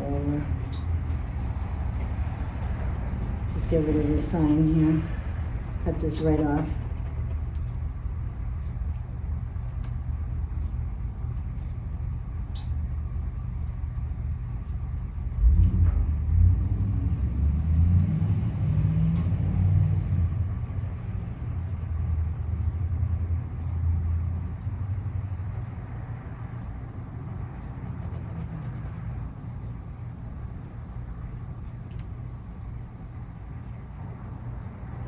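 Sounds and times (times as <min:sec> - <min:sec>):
vehicle engine passing by: 0:15.4 - 0:20.6.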